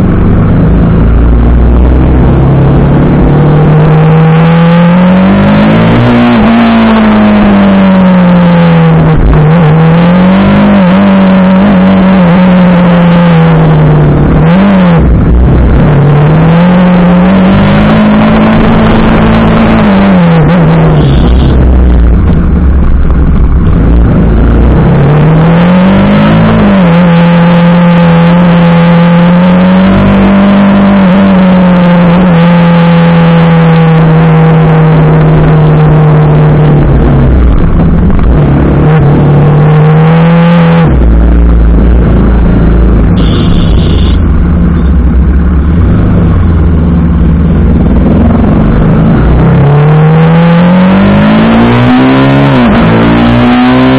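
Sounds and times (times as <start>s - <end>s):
motorcycle engine running: 0.0s - 4.1s, 20.8s - 24.9s, 41.0s - 49.4s.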